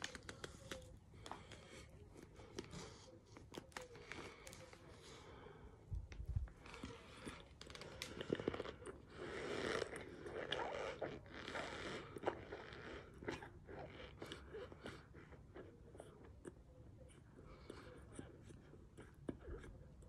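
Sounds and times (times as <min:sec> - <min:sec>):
crunchy chewing: 0:06.0 - 0:20.0.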